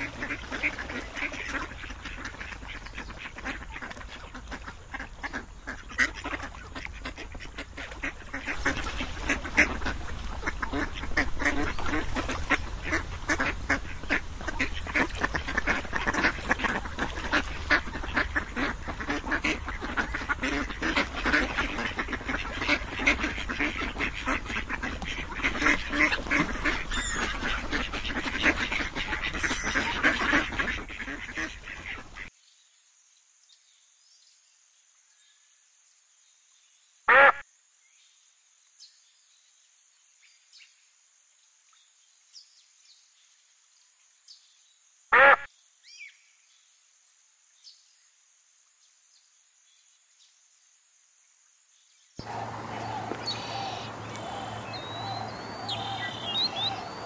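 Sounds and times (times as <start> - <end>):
ducks and geese calling: 0.0 - 32.3, 52.2 - 57.0.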